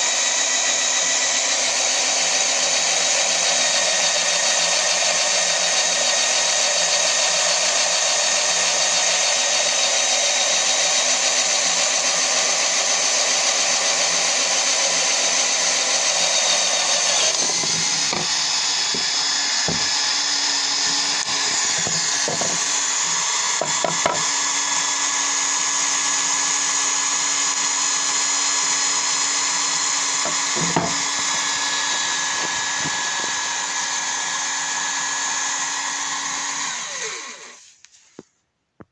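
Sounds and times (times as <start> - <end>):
drill press motor whining: 0.0 - 37.7
knocks and taps: 17.5 - 19.9.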